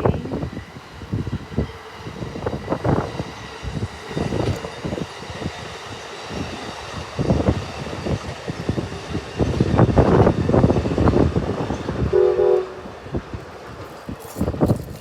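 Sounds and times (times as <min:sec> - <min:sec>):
train passing rumble: 0:00.0 - 0:15.0
faint high tone: 0:12.2 - 0:12.9.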